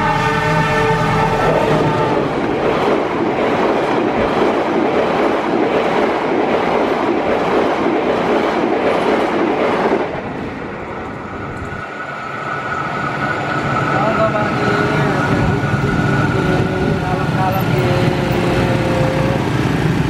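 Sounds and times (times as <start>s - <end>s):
train wheels on rails: 0.0s - 20.0s.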